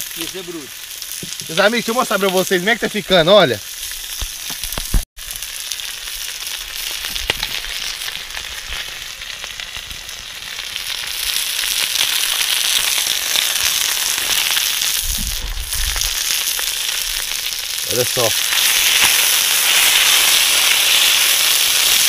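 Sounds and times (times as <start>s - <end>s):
chicken sizzling in oil: 0.0s - 22.0s
oil popping: 3.8s - 9.9s.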